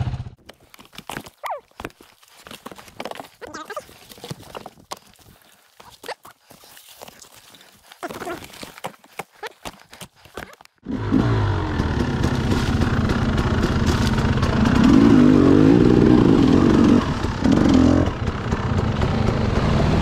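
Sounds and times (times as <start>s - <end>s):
dirt bike engine revving: 10.8s - 20.0s.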